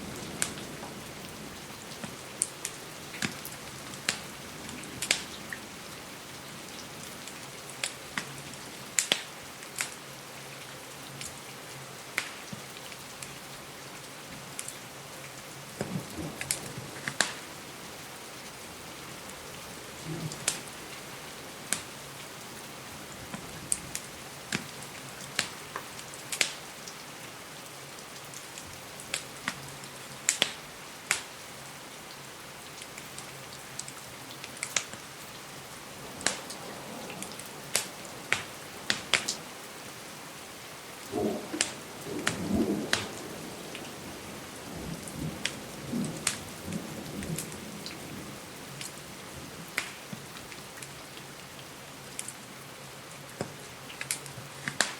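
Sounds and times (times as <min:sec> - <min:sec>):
steady rain hiss: 0:00.0 - 0:54.9
wood fire crackling and popping: 0:01.9 - 0:05.6, 0:07.7 - 0:08.3, 0:09.0 - 0:10.0, 0:12.2 - 0:12.7, 0:15.8 - 0:17.5, 0:19.4 - 0:21.0, 0:21.6 - 0:22.0, 0:23.3 - 0:27.0, 0:28.3 - 0:29.6, 0:30.2 - 0:31.3, 0:33.8 - 0:35.1, 0:36.0 - 0:39.7, 0:41.0 - 0:43.8, 0:45.0 - 0:46.5, 0:49.7 - 0:50.9, 0:53.4 - 0:54.9.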